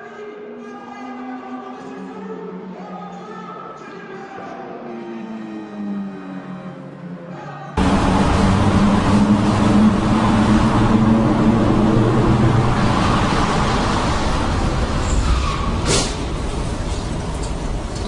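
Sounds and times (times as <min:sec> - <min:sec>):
car engine running: 0:07.8 - 0:14.9.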